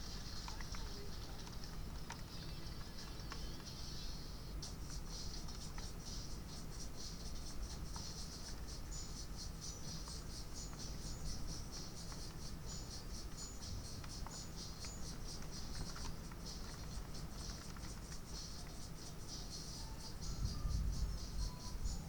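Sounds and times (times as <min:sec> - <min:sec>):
insects chirring: 0:00.0 - 0:22.0
high whistled notes: 0:19.3 - 0:22.0.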